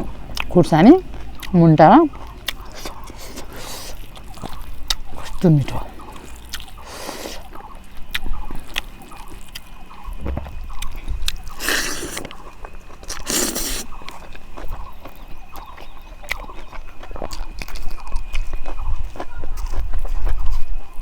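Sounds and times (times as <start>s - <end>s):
chewing and smacking: 0.0s - 21.0s
loud bites or slurps: 11.5s - 12.3s, 13.1s - 14.0s.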